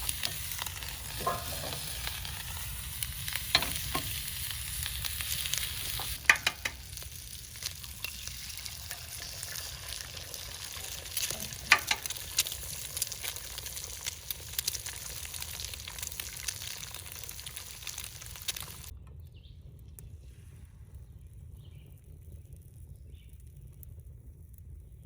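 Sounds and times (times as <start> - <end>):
food sizzling in a pan: 0.0 - 18.9.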